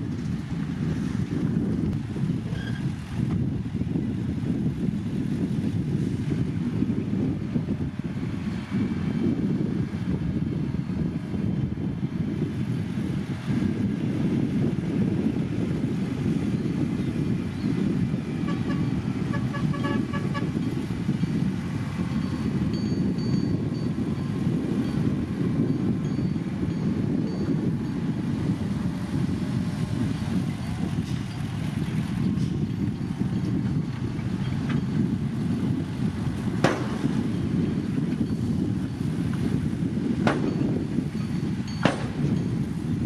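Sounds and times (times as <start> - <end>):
heavy machinery rumbling: 14.6 - 43.0.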